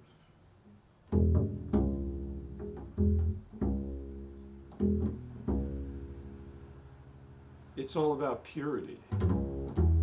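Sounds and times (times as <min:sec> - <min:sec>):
plucked bass notes: 0:01.1 - 0:07.6, 0:09.1 - 0:10.0.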